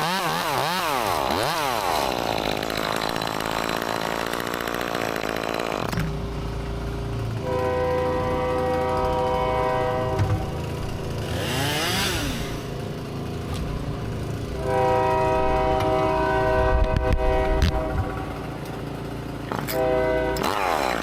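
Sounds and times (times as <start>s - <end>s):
chainsaw revving: 0.0s - 21.0s
train horn blasts: 7.4s - 10.6s, 14.5s - 18.6s, 19.5s - 21.0s.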